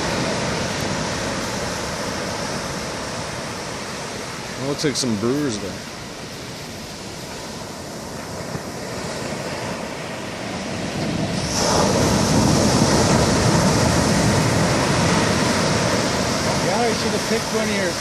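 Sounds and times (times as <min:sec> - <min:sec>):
ocean waves crashing: 0:00.0 - 0:18.0.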